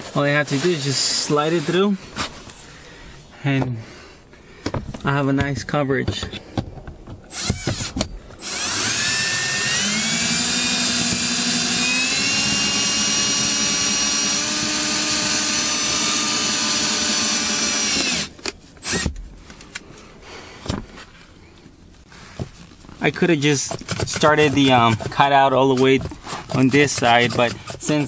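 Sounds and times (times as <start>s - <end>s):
power drill whining: 7.3s - 19.1s.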